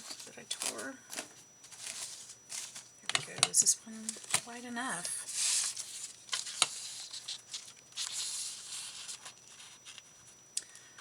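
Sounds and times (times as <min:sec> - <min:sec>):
paper rustling: 0:00.0 - 0:02.9, 0:05.3 - 0:10.1.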